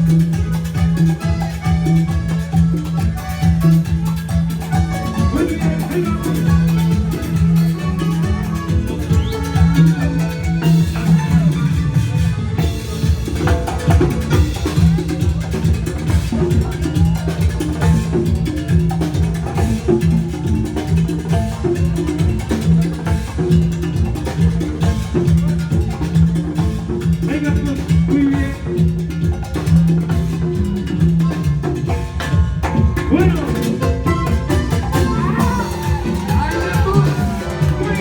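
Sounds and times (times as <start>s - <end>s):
repeating bass line: 0.0s - 29.1s, 32.8s - 38.0s
latin dance band instrumental: 0.0s - 38.0s
percussion beat: 0.0s - 38.0s.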